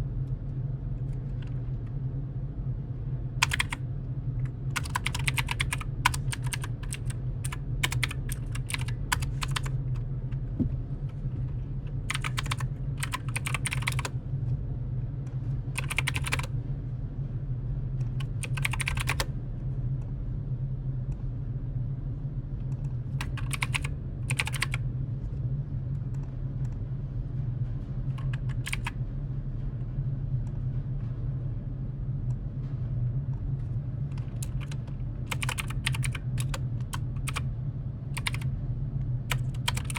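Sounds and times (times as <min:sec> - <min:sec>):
steady low hum: 0:00.0 - 0:39.9
typing on computer keyboard: 0:03.4 - 0:03.8, 0:04.8 - 0:09.8, 0:12.1 - 0:14.1, 0:15.8 - 0:16.5, 0:18.1 - 0:19.3, 0:23.2 - 0:24.8, 0:28.2 - 0:29.0, 0:34.2 - 0:37.4, 0:38.2 - 0:38.5, 0:39.3 - 0:39.9.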